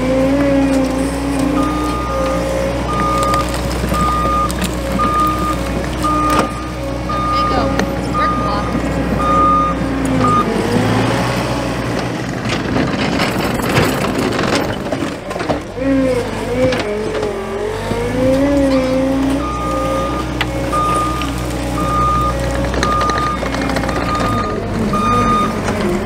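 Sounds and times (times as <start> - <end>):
diesel engine under load: 0.0 - 26.0
steel bucket scraping dirt: 0.0 - 26.0
reverse alarm beeping: 1.6 - 10.5, 19.4 - 25.6.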